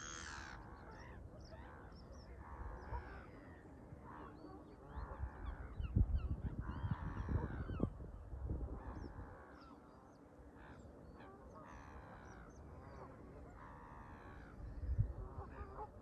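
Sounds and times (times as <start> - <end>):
wind buffeting microphone: 4.9 - 9.3, 14.6 - 16.0.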